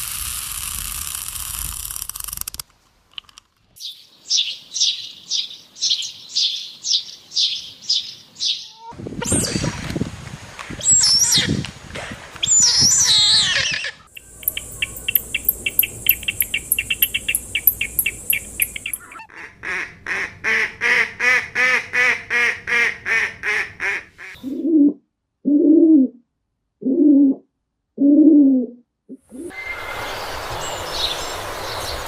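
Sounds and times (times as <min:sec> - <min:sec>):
high gliding bird calls: 0:03.8 - 0:08.9, 0:12.4 - 0:19.3, 0:29.4 - 0:32.0
short bird calls: 0:12.5 - 0:19.3
high-pitched bird trill: 0:12.7 - 0:19.2.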